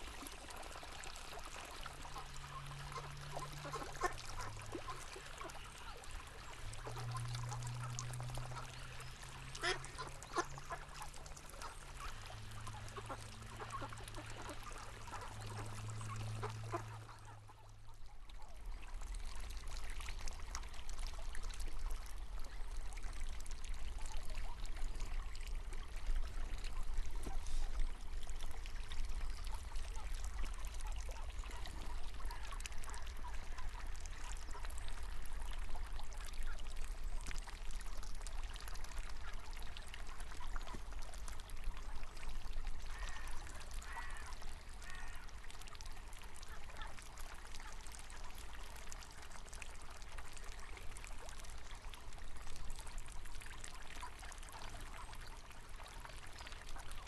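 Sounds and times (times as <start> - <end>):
river water running: 0.0 - 57.0
ducks quacking: 2.0 - 6.0, 6.8 - 11.9, 12.6 - 17.6.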